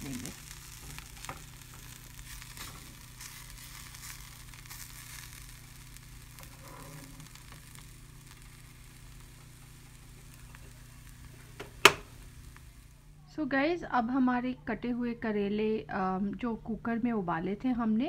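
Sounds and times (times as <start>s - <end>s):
soft sizzle in pan: 0.0s - 18.0s
spatula scrapes: 6.4s - 7.4s.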